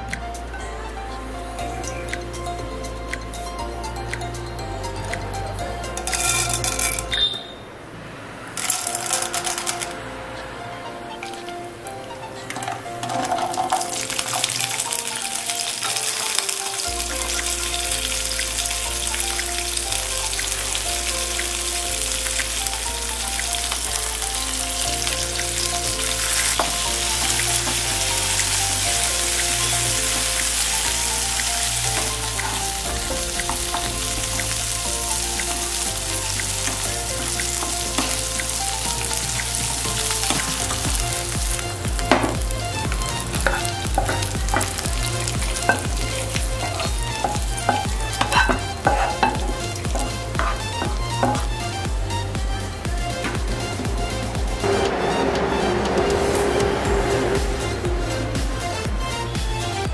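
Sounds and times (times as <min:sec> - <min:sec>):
background music with bass line: 0:00.0 - 0:07.3, 0:08.9 - 0:59.9
food sizzling in a pan: 0:21.2 - 0:41.6.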